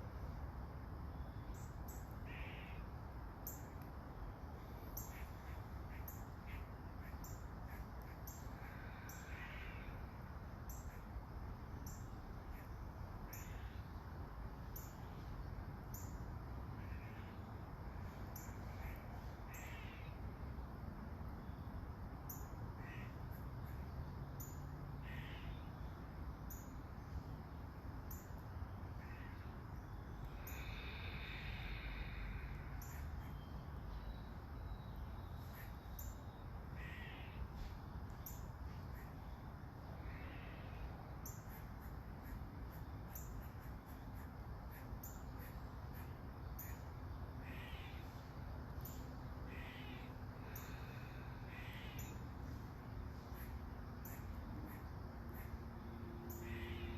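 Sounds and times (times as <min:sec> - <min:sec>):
crows cawing: 0:02.2 - 0:02.8, 0:05.0 - 0:10.0, 0:18.8 - 0:20.2, 0:22.8 - 0:23.2, 0:25.0 - 0:25.5, 0:29.0 - 0:29.5, 0:36.8 - 0:37.4, 0:47.4 - 0:48.2, 0:49.5 - 0:52.2, 0:56.4 - 0:56.9.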